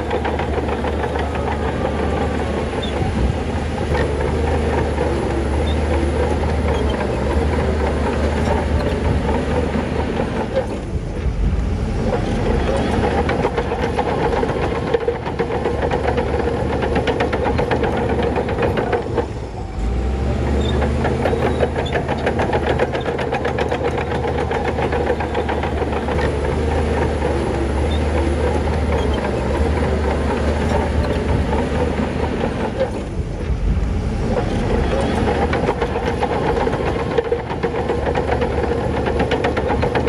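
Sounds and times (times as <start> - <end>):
heavy diesel machinery engine drone: 0.0 - 40.0
rapid metallic clatter: 34.3 - 40.0.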